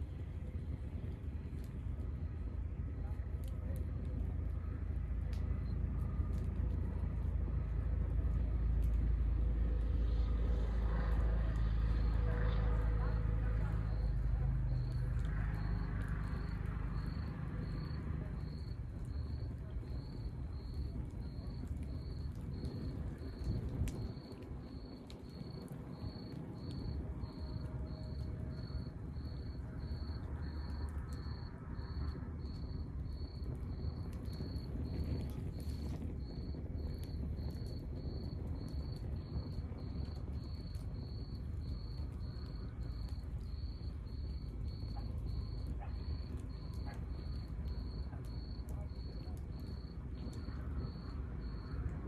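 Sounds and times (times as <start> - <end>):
log fire crackling: 0.0 - 52.0
cricket chirping: 14.8 - 51.9.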